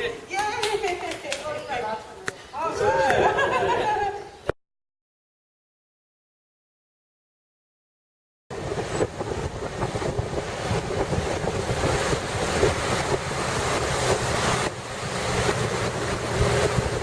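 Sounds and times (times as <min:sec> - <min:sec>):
ocean surf washing onto beach: 0:08.5 - 0:17.0
wind buffeting microphone: 0:08.5 - 0:17.0.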